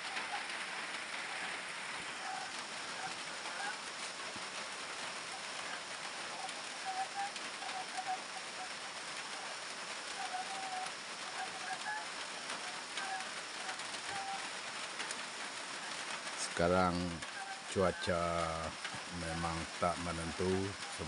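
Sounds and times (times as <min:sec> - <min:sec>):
steady rain hissing: 0:00.0 - 0:21.0
bird short repeated calls: 0:10.1 - 0:14.4.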